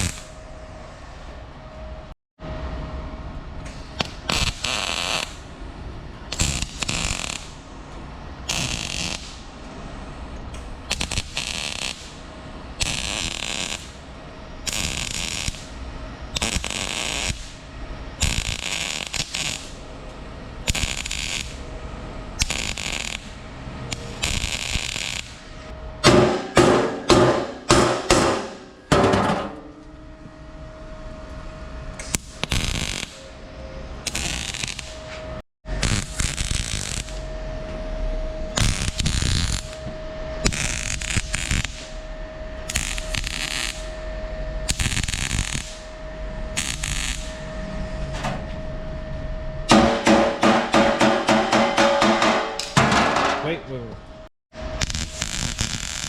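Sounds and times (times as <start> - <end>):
welder crackling hiss: 0.0 - 0.3, 4.0 - 5.4, 6.3 - 7.6, 8.5 - 9.5, 10.9 - 12.2, 12.8 - 14.0, 14.6 - 17.6, 18.2 - 19.8, 20.7 - 21.6, 22.4 - 25.4, 32.0 - 33.2, 34.1 - 35.0, 35.8 - 37.2, 38.6 - 39.8, 40.4 - 42.0, 42.7 - 43.9, 44.7 - 45.8, 46.6 - 47.3, 54.8 - 56.0.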